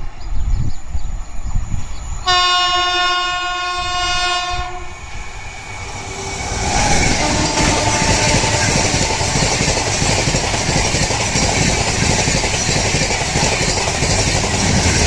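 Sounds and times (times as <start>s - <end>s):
locomotive air horn blast: 2.3s - 5.0s, 6.1s - 9.3s.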